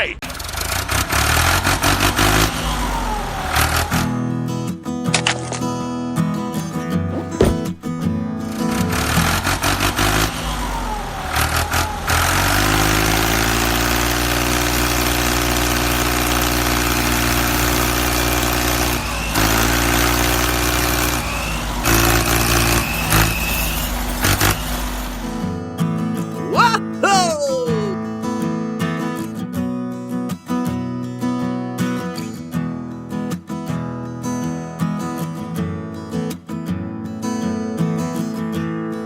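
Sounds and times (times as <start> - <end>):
engine running: 0.3 - 4.2, 8.5 - 25.6
irregular clatter: 7.1 - 7.9.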